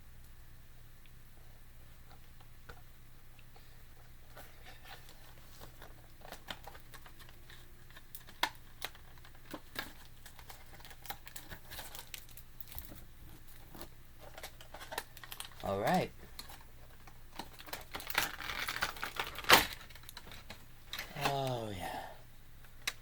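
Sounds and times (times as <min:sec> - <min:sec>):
packaging crinkling and rustling: 0:04.2 - 0:21.6.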